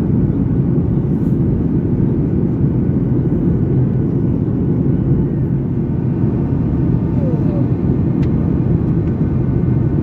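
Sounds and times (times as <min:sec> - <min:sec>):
airplane cabin rumble: 0:00.0 - 0:10.0.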